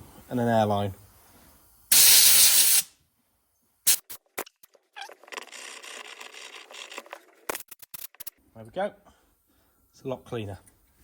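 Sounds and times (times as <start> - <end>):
pressurised spray hissing: 1.9 - 2.9
rough hissing: 1.9 - 2.9.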